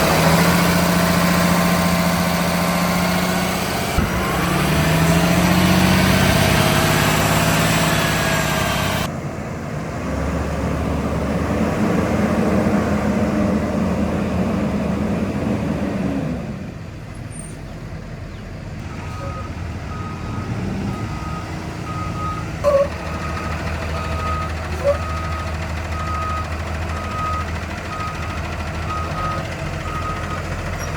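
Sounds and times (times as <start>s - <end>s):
bus engine running: 0.0s - 30.9s
reversing alarm beeps: 18.9s - 30.9s.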